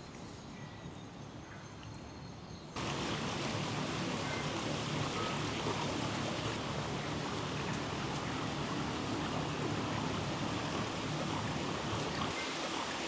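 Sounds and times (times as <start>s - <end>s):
faint bird calls: 2.8s - 12.3s
stream rushing: 2.8s - 13.0s.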